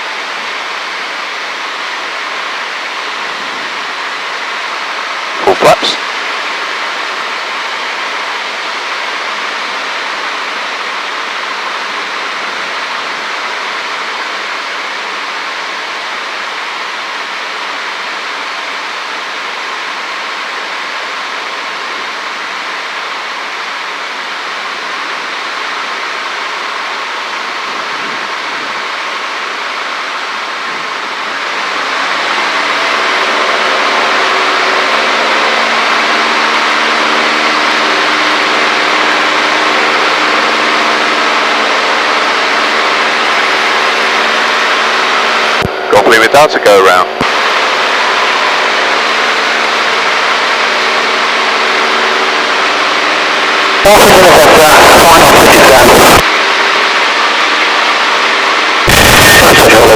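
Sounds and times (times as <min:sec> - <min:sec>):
engine tones humming: 0:00.0 - 0:59.9
light aircraft engine and airflow: 0:00.0 - 0:59.9.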